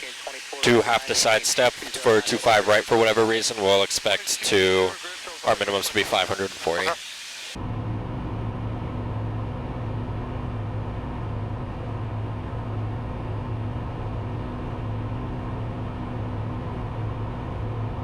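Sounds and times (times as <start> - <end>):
propeller plane engine droning: 0.0 - 18.0.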